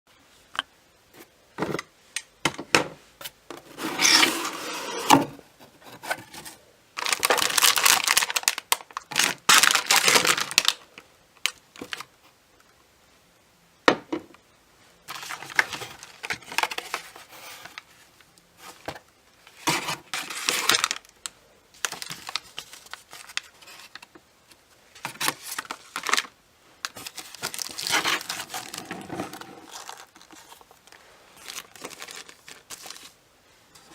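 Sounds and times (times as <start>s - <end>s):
paper and plastic crinkling: 3.6s - 12.1s, 15.1s - 21.2s, 21.8s - 24.2s, 24.9s - 33.2s.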